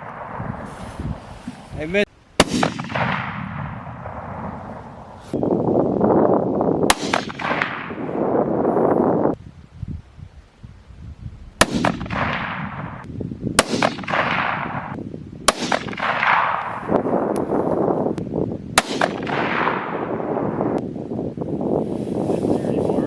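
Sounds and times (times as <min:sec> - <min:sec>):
gunshots with rolling echo: 0:00.0 - 0:05.3, 0:06.8 - 0:08.7, 0:11.6 - 0:17.4, 0:18.7 - 0:20.8.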